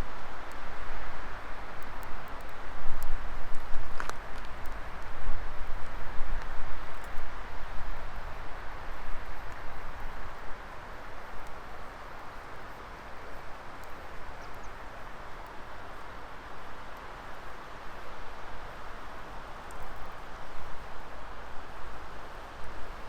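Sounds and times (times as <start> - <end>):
fire crackling: 0.2 - 18.1.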